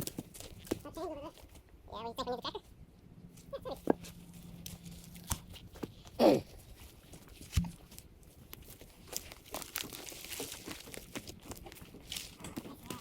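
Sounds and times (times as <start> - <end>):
branches crackling and snapping: 0.0 - 1.6, 4.5 - 6.1, 7.1 - 13.0.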